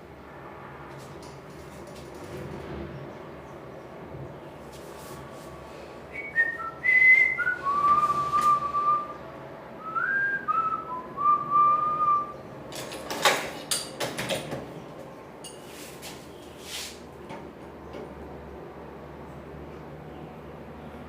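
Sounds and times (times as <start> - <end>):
person whistling a tune: 6.1 - 9.2, 9.8 - 12.4
sharp knocks and clatters: 12.7 - 14.8.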